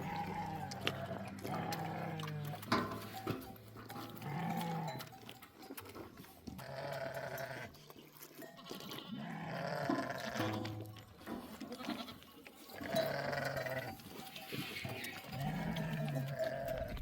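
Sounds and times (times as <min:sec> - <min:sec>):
sheep bleating: 0:00.0 - 0:02.7, 0:04.0 - 0:05.1, 0:06.5 - 0:07.7, 0:08.4 - 0:10.5, 0:11.6 - 0:14.0, 0:15.2 - 0:17.0.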